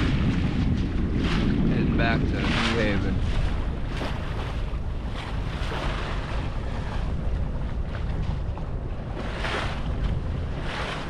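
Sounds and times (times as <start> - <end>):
water rushing along hull: 0.0 - 11.0
wind buffeting microphone: 0.0 - 11.0.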